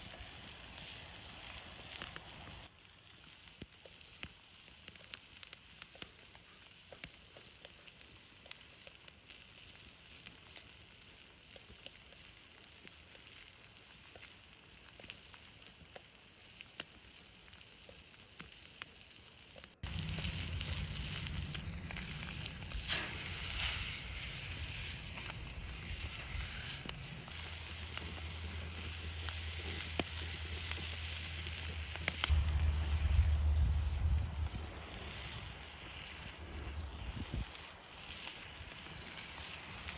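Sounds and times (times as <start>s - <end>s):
fire crackling: 0.0s - 39.9s
steaks sizzling in a pan: 0.0s - 39.9s
low steady rumble: 19.8s - 35.1s.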